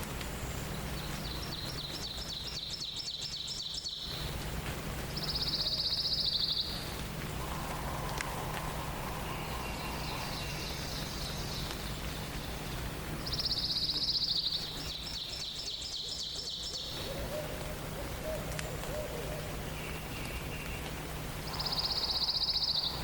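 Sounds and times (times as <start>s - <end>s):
low background noise: 0.0s - 23.0s
songbirds singing: 0.0s - 23.0s
fast high bird trill: 7.4s - 11.6s.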